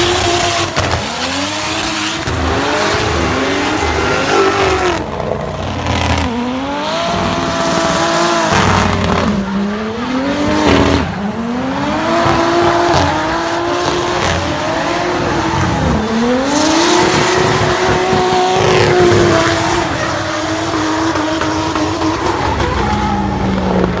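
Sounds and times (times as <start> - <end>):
car engine at high revs: 0.0 - 24.0.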